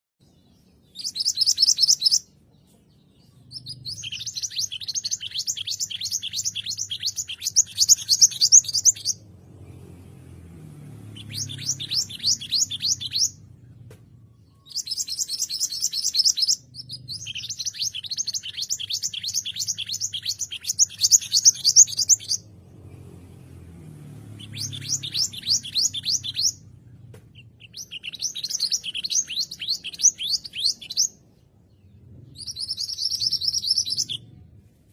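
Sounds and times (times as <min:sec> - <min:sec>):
songbird chattering trills: 0:03.2 - 0:09.2, 0:14.5 - 0:22.4.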